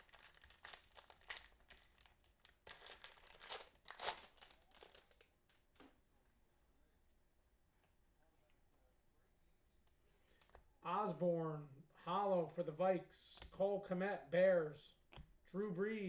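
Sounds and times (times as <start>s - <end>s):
cellophane wrapping crinkling: 0.0s - 5.8s.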